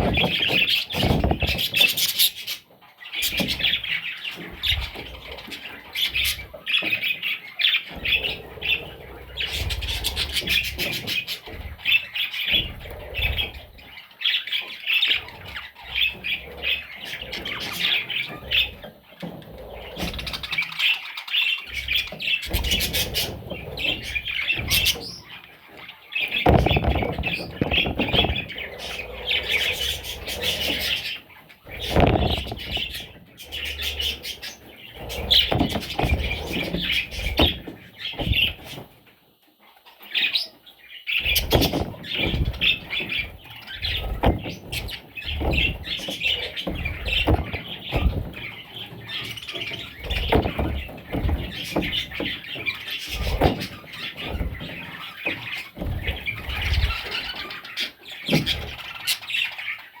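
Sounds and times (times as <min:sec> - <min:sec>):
short knocks and bumps: 0:00.0 - 0:02.6, 0:21.7 - 0:39.0, 0:41.2 - 0:57.6, 0:58.3 - 0:59.1
budgerigars chirping and squawking: 0:00.0 - 1:00.0.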